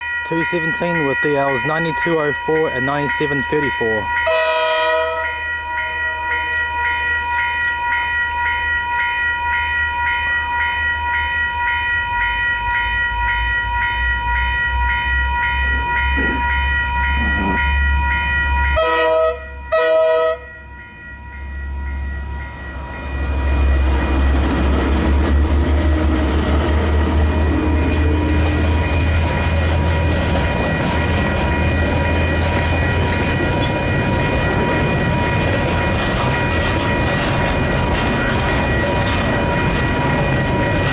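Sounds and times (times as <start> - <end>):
level crossing alarm ringing: 0.0 - 25.7, 27.1 - 40.9
train rumbling past: 0.0 - 40.9
train horn blasts: 4.2 - 6.6, 18.8 - 20.5.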